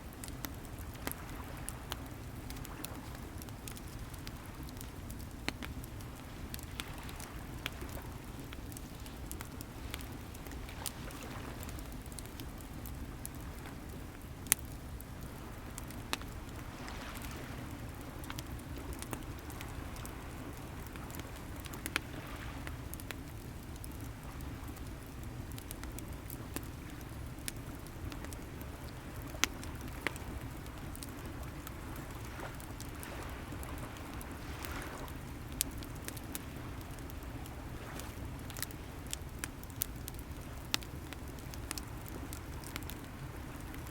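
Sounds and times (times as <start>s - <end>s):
bonfire crackling and popping: 0.0s - 43.9s
sea waves: 0.6s - 23.1s, 29.5s - 39.4s.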